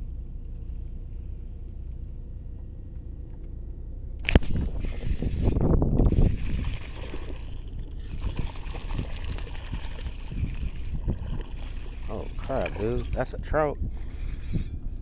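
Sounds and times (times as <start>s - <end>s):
low rumble on microphone: 0.0s - 15.0s
water sloshing against kayak hull: 4.2s - 15.0s.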